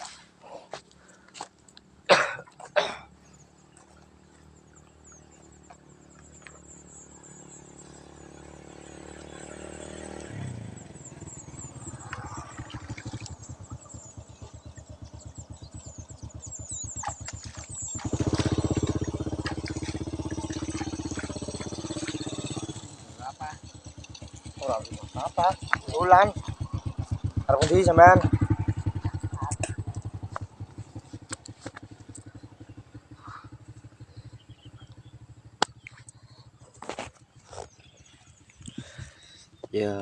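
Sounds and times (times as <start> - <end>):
motorcycle engine putter: 11.1 - 39.0.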